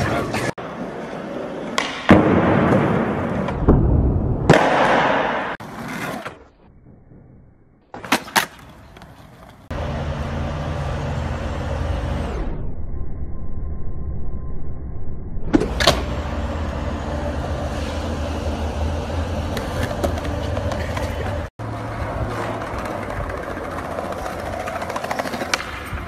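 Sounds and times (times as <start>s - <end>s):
skateboard wheels rolling on concrete: 0.0s - 12.3s, 15.5s - 26.0s
skateboard clacking on ground: 19.5s - 26.0s.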